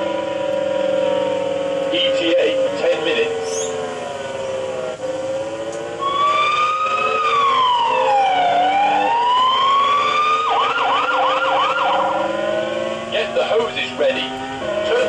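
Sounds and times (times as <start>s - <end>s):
fire engine siren wail: 0.0s - 13.2s
siren yelp chirps: 3.3s - 4.0s, 6.0s - 12.3s.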